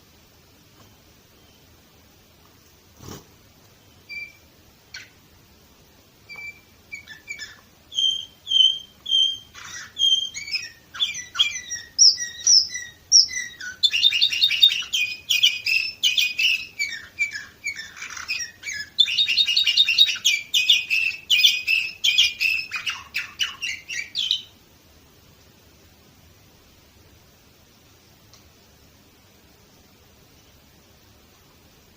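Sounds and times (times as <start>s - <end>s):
canary singing: 3.0s - 5.3s, 6.2s - 24.6s.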